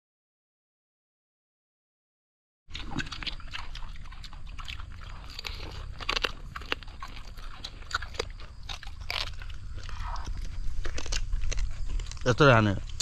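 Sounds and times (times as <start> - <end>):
crunching and chewing: 2.7 - 13.0.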